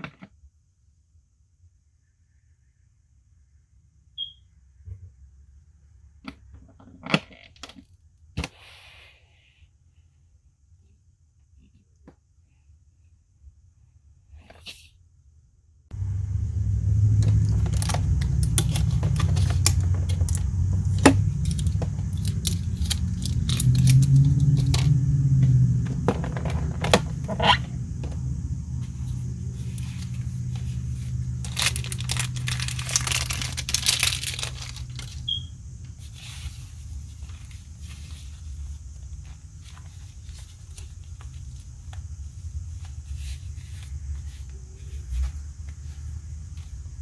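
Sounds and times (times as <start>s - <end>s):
steady low hum: 15.9s - 47.0s
plastic packaging crinkling: 16.0s - 41.7s
plastic parts clicking and rattling: 16.3s - 25.0s, 25.8s - 28.2s, 29.7s - 35.4s.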